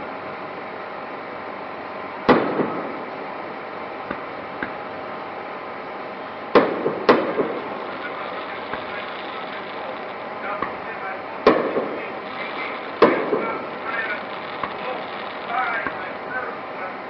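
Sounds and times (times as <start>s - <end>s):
steady background noise: 0.0s - 17.0s
fireworks exploding: 2.3s - 3.2s, 6.4s - 16.7s
faint firework pops: 6.6s - 10.8s, 11.5s - 16.0s.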